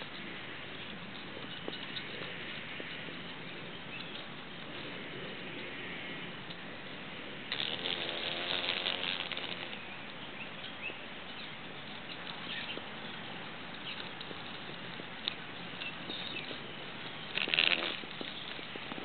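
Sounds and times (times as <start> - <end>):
insect wings buzzing: 7.5 - 9.8, 17.3 - 18.5.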